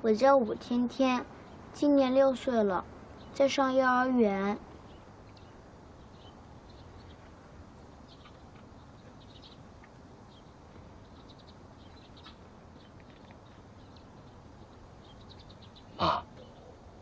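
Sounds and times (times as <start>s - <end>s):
low background hiss: 0.0s - 17.0s
small birds chirping: 0.0s - 17.0s.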